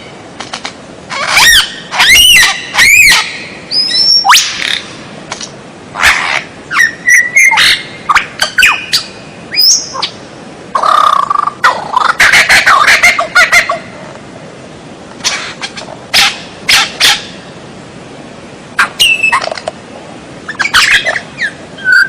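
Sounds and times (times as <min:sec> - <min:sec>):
bird singing whistled notes: 0:01.4 - 0:04.8, 0:06.7 - 0:10.2, 0:18.8 - 0:19.5, 0:20.5 - 0:22.0.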